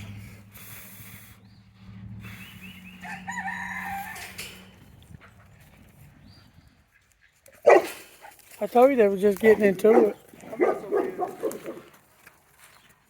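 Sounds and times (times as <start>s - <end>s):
rooster crowing: 3.0s - 4.6s.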